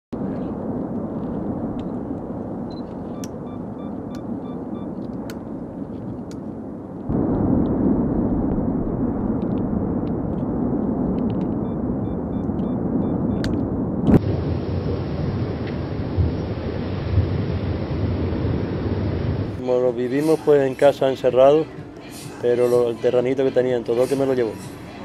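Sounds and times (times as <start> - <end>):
volcano rumbling roar: 7.0 - 19.6
sharp cracks: 7.1 - 11.6.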